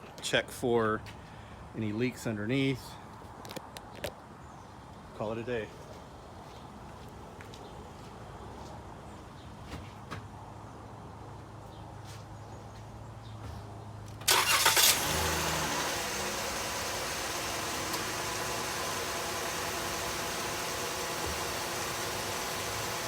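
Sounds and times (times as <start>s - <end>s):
starter motor cranking: 14.2s - 19.4s
car engine revving and idling: 14.3s - 23.0s.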